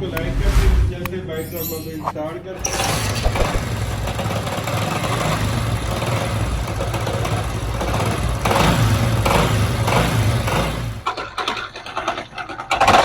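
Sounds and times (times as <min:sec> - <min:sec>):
strange noise inside engine: 0:00.0 - 0:01.4, 0:02.0 - 0:11.4
motorcycle engine running: 0:02.6 - 0:11.1.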